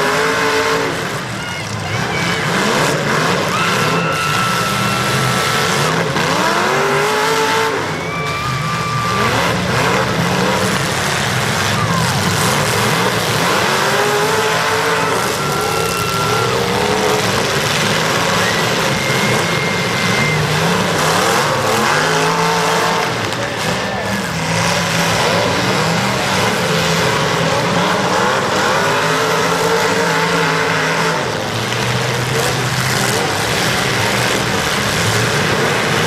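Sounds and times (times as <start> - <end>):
car engines revving: 0.0 - 36.0
tire squeals: 0.0 - 36.0.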